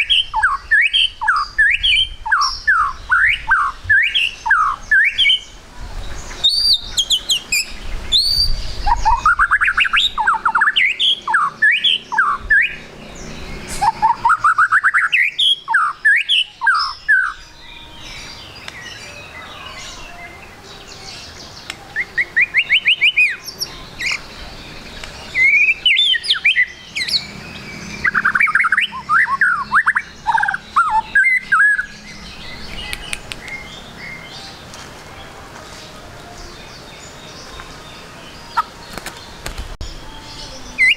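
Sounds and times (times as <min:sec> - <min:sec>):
bird singing whistled phrases: 0:00.0 - 0:05.6, 0:06.3 - 0:12.9, 0:13.8 - 0:24.3, 0:25.2 - 0:27.3, 0:28.0 - 0:34.3, 0:39.9 - 0:40.9.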